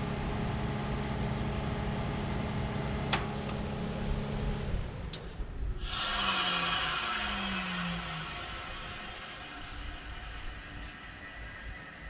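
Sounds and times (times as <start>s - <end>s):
air conditioner hum: 0.0s - 12.0s
loud hiss: 5.8s - 12.0s.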